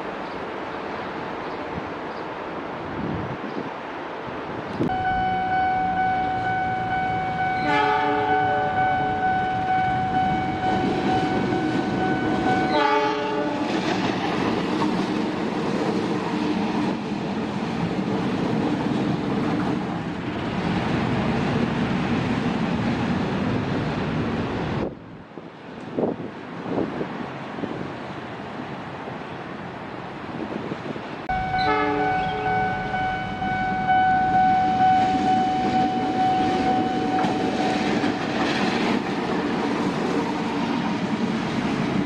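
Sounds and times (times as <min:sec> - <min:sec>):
train rumble with rail clatter: 0:00.0 - 0:42.0
train horn blast: 0:04.9 - 0:13.7, 0:31.3 - 0:37.8.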